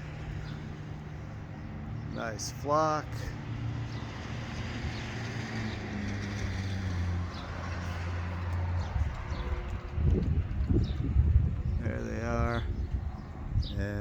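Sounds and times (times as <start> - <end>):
low engine hum: 3.1 - 14.0.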